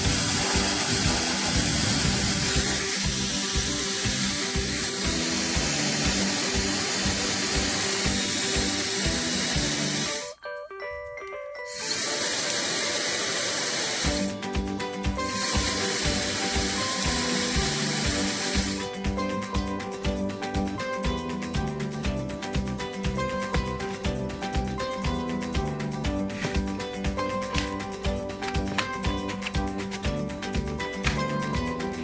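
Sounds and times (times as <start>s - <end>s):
hair dryer blowing: 0.0s - 10.3s, 11.8s - 14.3s, 15.3s - 18.8s
background music: 0.0s - 32.0s.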